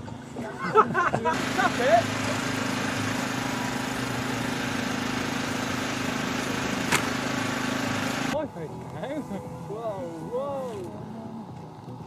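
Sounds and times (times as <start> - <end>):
model motor running: 1.3 - 12.0.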